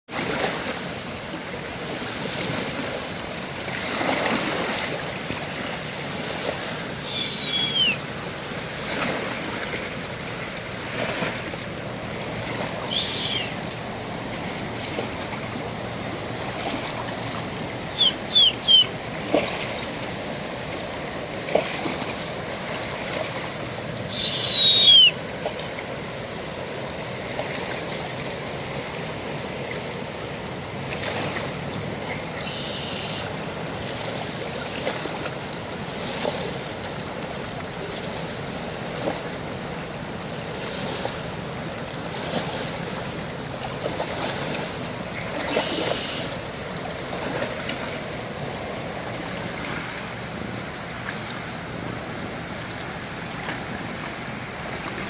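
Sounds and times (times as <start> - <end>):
bird chirps: 4.6 - 5.2, 7.1 - 8.0, 12.9 - 13.8, 18.0 - 18.9, 22.9 - 25.2, 32.4 - 33.2
birds whistling downward: 4.6 - 5.2, 7.0 - 8.0, 12.9 - 13.8, 17.9 - 18.9, 22.9 - 25.2, 32.4 - 33.2.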